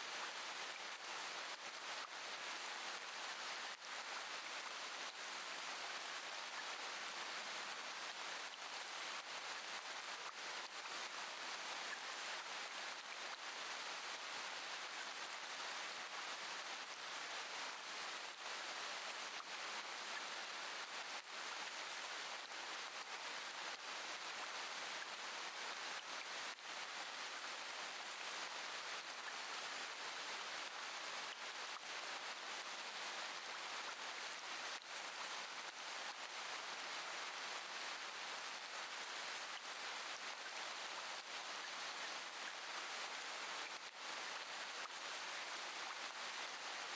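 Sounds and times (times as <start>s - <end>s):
steady rain falling: 0.1s - 46.9s.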